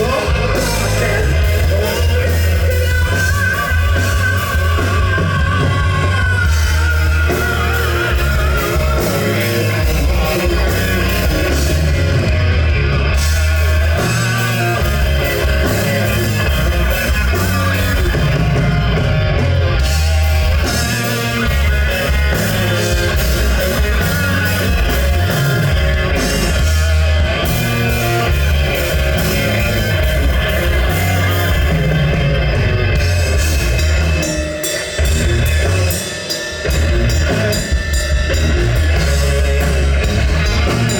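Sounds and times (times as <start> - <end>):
person singing: 0.0 - 26.7
live rock band playing: 0.0 - 40.9.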